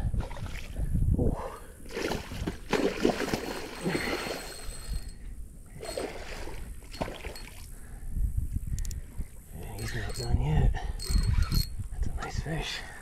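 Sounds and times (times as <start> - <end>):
water sloshing: 1.8 - 7.7
fishing reel cranking: 11.0 - 11.8.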